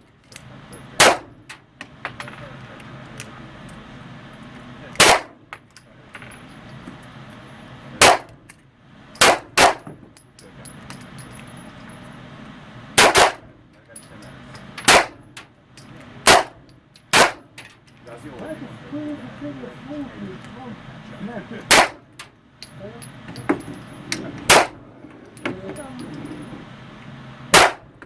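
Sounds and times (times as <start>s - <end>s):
handgun shots indoors: 1.0s - 1.3s, 5.0s - 5.3s, 9.2s - 9.9s, 13.0s - 13.4s, 14.9s - 15.2s, 16.3s - 17.5s, 21.7s - 22.0s, 24.5s - 24.8s, 27.5s - 27.8s.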